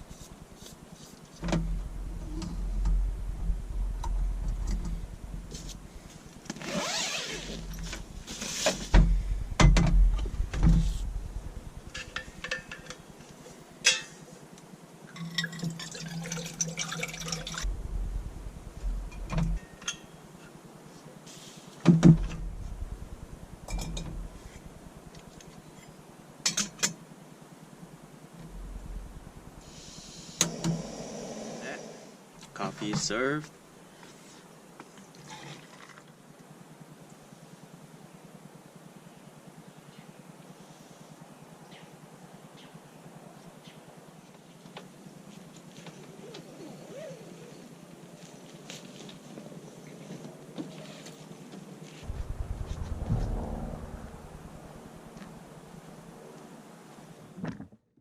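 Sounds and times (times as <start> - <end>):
water pouring: 15.2 - 17.7.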